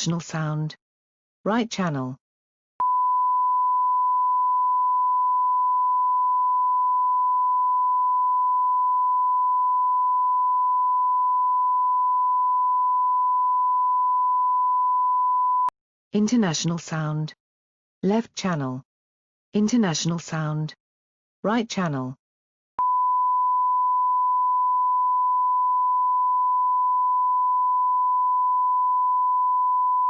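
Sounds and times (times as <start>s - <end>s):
sine wave tone: 2.8s - 15.7s, 22.8s - 30.0s.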